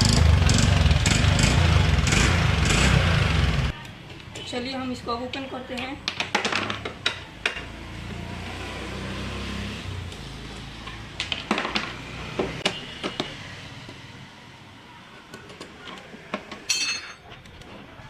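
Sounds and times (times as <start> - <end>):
metallic clatter with ring: 16.7 - 17.3.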